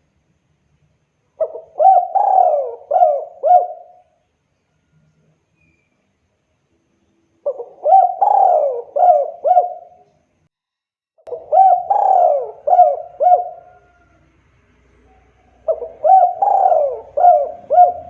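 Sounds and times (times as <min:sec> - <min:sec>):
dove cooing: 0:01.4 - 0:04.2, 0:07.4 - 0:10.1, 0:11.3 - 0:14.3, 0:15.1 - 0:18.0.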